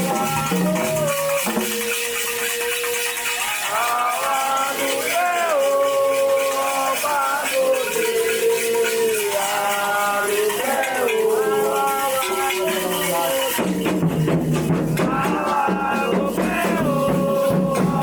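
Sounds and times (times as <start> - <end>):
shaken rattle: 0.0 - 18.0
voices singing a chant: 0.0 - 18.0.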